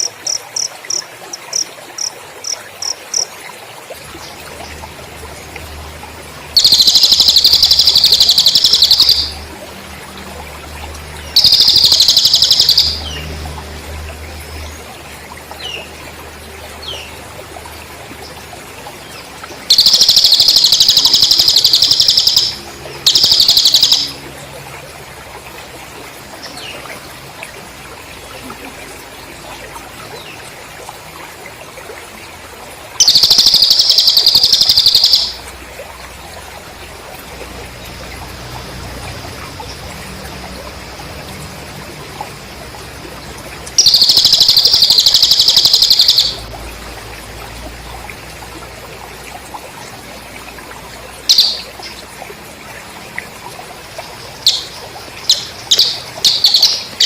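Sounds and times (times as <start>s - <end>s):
crickets chirping: 0.0s - 3.3s, 5.8s - 13.8s, 19.7s - 24.4s, 33.0s - 35.5s, 36.5s - 48.3s, 51.2s - 51.8s, 53.8s - 57.0s.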